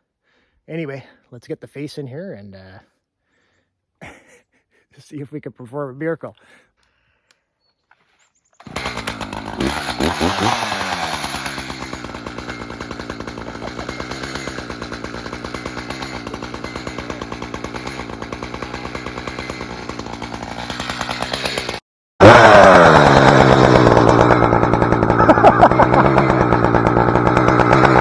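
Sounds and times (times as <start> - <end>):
chainsaw cutting wood: 8.6 - 28.0.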